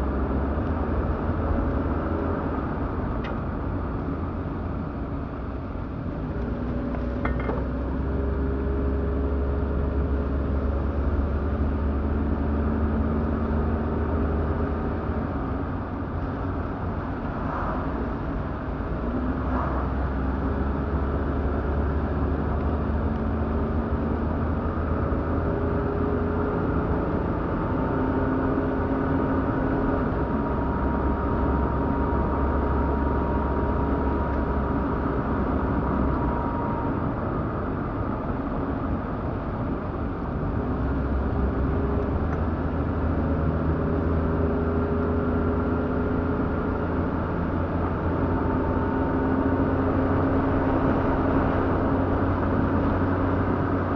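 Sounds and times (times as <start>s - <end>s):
car engine rumble: 0.0s - 53.9s
road noise: 0.0s - 53.9s.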